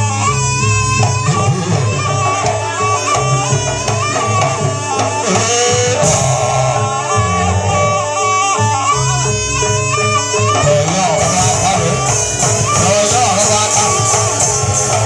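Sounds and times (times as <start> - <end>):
drumming: 0.0 - 7.1, 10.4 - 15.0
reed shawm melody: 0.0 - 15.0.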